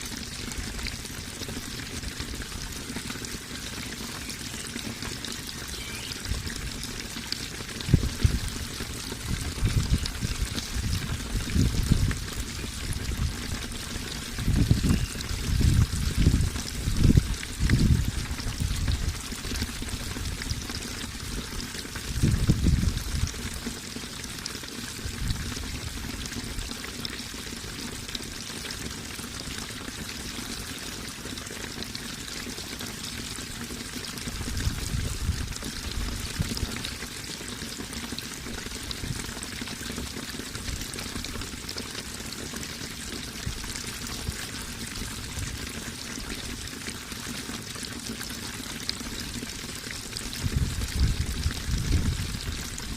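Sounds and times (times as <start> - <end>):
water trickling and splashing: 0.0 - 52.9.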